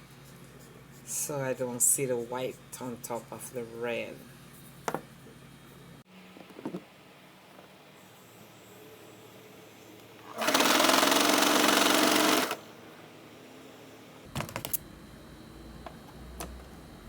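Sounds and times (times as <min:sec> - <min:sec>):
electric sewing machine running: 0:10.3 - 0:12.6.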